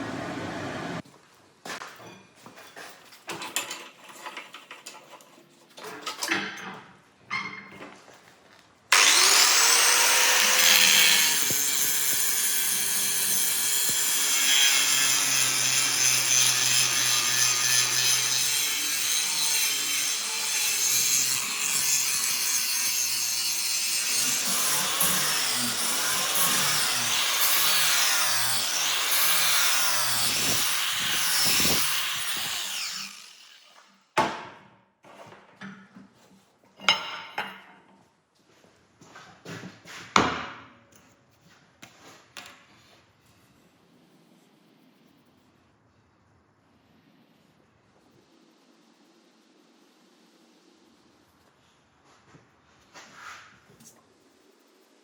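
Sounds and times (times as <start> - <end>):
grinder rasping on metal: 8.9 - 33.9.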